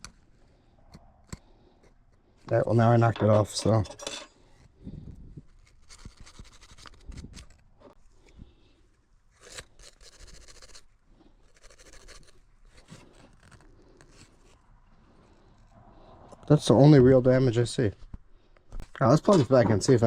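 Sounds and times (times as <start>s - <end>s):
faint scraping on circuit board: 9.4s - 14.6s.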